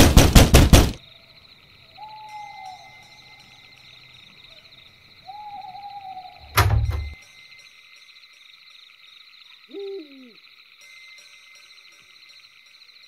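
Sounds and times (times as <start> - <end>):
owl hooting: 1.9 - 3.6, 4.5 - 6.6, 9.7 - 10.4.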